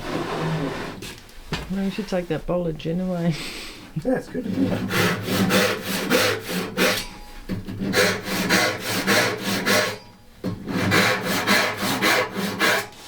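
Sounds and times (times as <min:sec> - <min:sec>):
hand saw cutting wood: 0:04.4 - 0:13.0.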